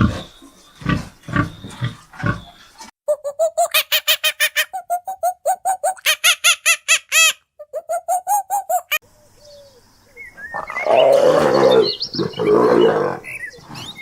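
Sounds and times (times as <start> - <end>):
high chirps: 3.1 - 9.0.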